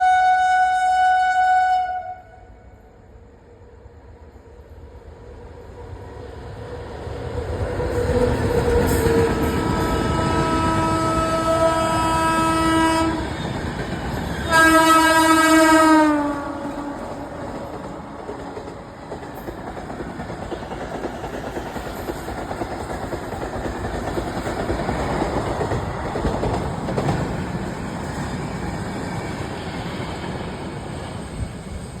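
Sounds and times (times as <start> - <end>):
train horn blasts: 0.0 - 2.8, 8.9 - 13.3, 14.4 - 18.2
train rumbling past: 0.0 - 32.0
wheels clacking on rail joints: 16.6 - 28.8.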